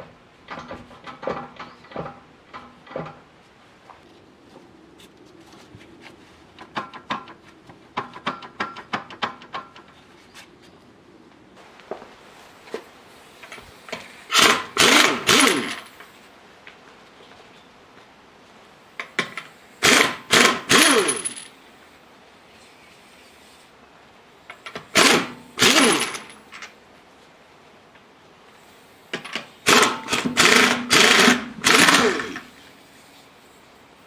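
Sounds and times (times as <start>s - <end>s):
hand tool clicks and knocks: 0.5s - 3.3s, 29.2s - 32.5s.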